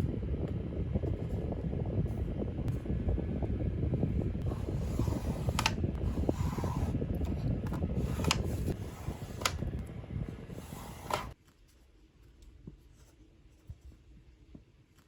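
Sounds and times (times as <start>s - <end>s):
small machine mechanism rumbling: 0.0s - 11.4s.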